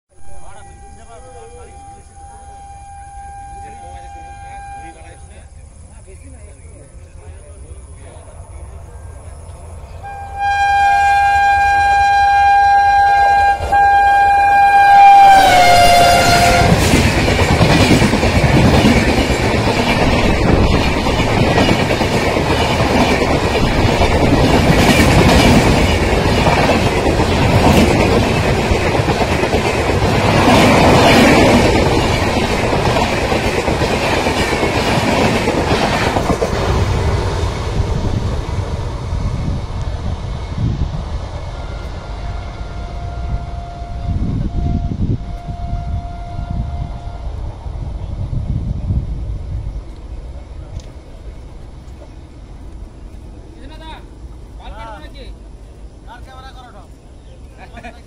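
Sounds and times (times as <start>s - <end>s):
train horn blast: 0.1s - 5.5s, 10.0s - 17.0s, 41.5s - 47.5s
train coaches rumbling and rattling: 0.1s - 58.0s.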